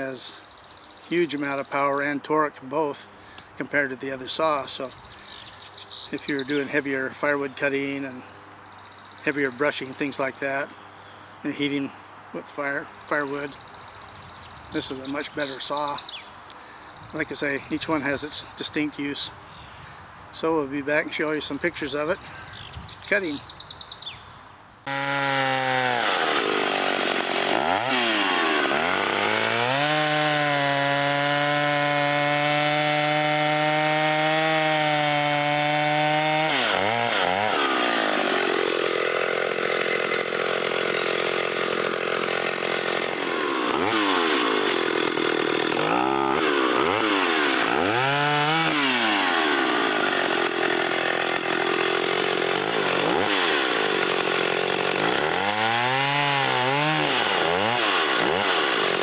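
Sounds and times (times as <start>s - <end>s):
chainsaw cutting wood: 24.8s - 59.0s.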